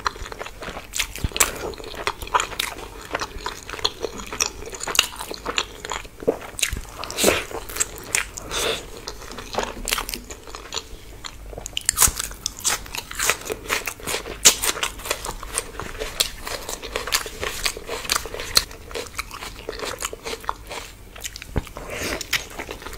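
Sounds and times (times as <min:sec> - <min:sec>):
person crunching and chewing: 0:00.0 - 0:22.9.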